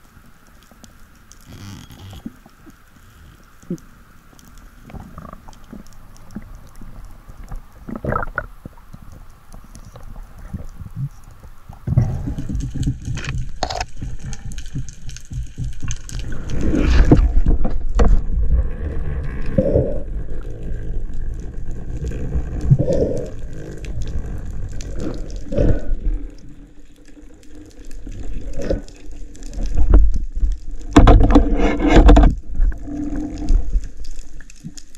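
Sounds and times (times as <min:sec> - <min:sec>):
underwater bubbling: 0:00.0 - 0:34.9
low underwater rushing: 0:03.7 - 0:34.9.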